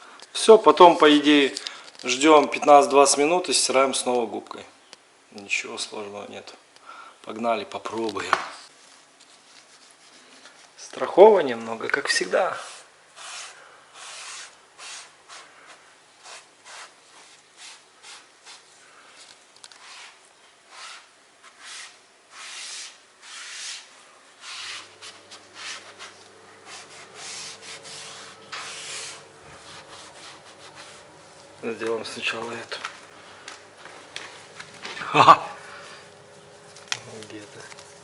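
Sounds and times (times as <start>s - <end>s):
spatula scraping grout: 19.7s - 31.1s.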